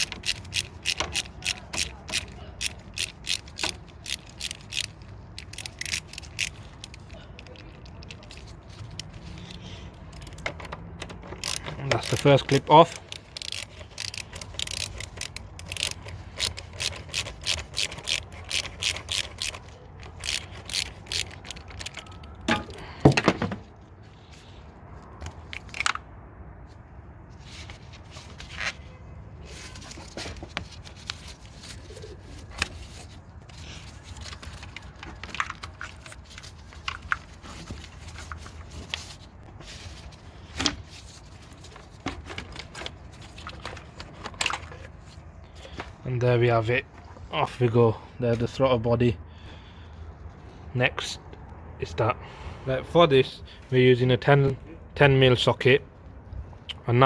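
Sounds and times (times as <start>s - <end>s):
hand ratchet clicking: 0.0s - 7.1s, 8.9s - 22.8s
clicks and scrapes of rubber pipe: 0.0s - 22.9s.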